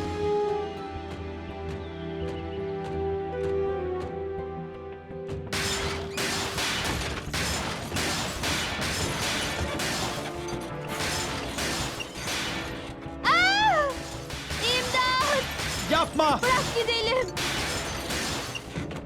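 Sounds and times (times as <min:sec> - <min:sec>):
cartoon soundtrack music: 0:00.0 - 0:19.0
loud mechanical crashing hits: 0:05.6 - 0:12.9, 0:13.9 - 0:18.9.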